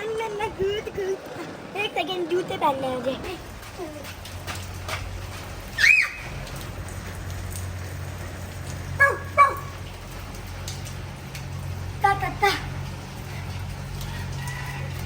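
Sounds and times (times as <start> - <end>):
rain falling: 0.0 - 15.0
loud short calls: 5.8 - 6.3.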